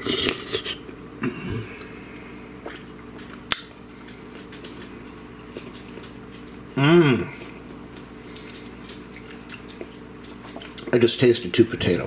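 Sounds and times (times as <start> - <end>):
steady low hum: 0.0 - 12.0
wet chewing mouth sounds: 1.7 - 11.0.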